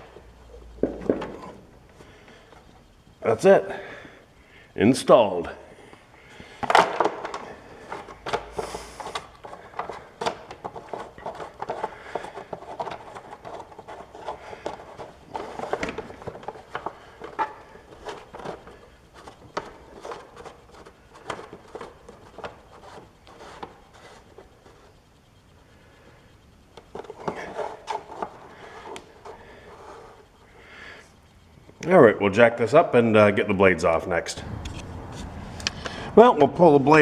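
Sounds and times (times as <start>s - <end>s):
hands handling parts and tools: 6.6s - 25.0s, 26.7s - 30.3s.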